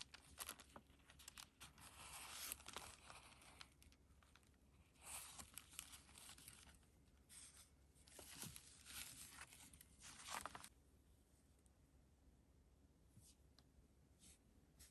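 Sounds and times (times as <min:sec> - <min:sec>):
paper pages rustling: 0:00.0 - 0:10.7.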